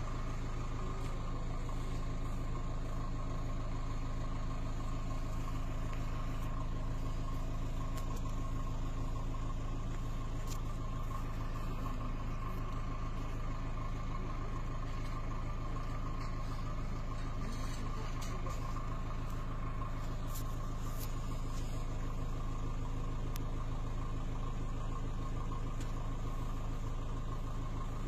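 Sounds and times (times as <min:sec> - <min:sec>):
car engine idling: 0:00.0 - 0:28.0
faint ticks: 0:23.3 - 0:23.5, 0:25.7 - 0:26.1.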